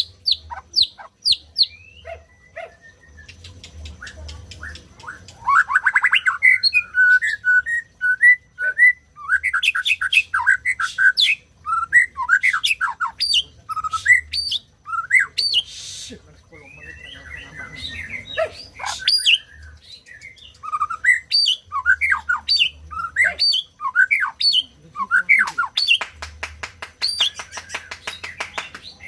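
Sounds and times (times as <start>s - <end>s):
bird singing whistled notes: 0.0s - 26.0s, 27.0s - 29.0s.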